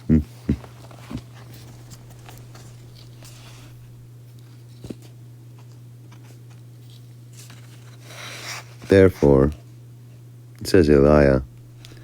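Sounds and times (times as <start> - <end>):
low hum: 0.5 - 4.3, 10.8 - 12.0.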